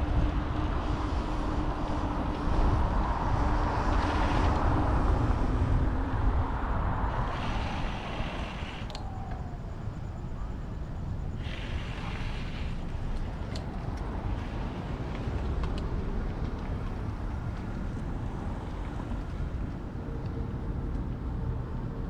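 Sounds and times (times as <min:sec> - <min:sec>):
wind and road noise: 0:00.0 - 0:22.0
light clicks: 0:08.8 - 0:09.4.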